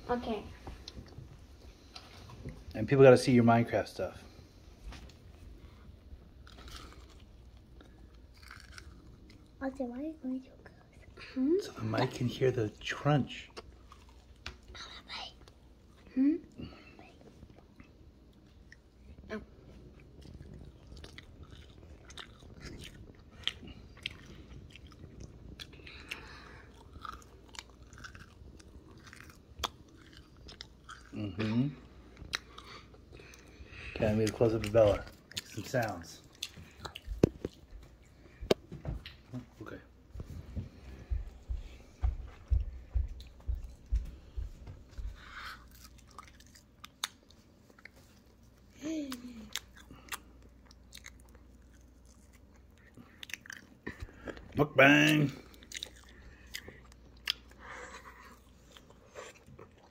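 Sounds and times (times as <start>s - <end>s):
person chewing crunchy food: 6.0s - 9.6s, 13.4s - 14.7s, 16.6s - 38.6s, 40.8s - 59.9s.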